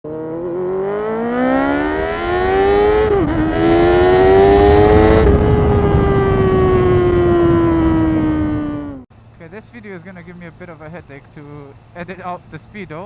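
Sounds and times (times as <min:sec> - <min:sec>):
motorcycle engine accelerating: 0:00.0 - 0:09.1.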